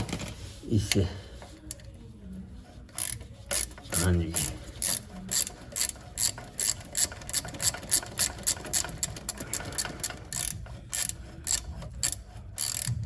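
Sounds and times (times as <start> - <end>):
ratchet wrench clicking: 2.9 - 13.0.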